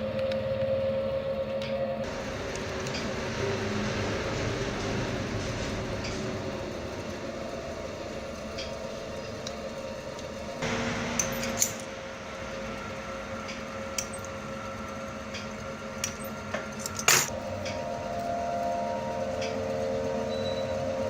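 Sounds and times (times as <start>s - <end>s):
steady mechanical hum: 0.0s - 21.0s
metal tools clinking: 11.2s - 11.9s, 16.0s - 17.3s.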